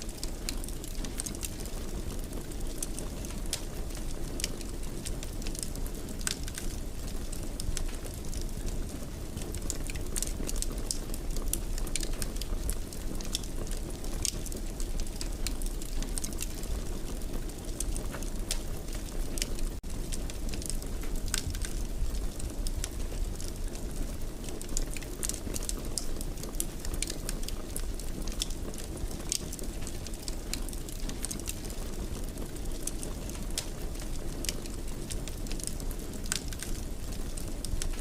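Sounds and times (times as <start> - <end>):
wood fire crackling: 0.0 - 38.0.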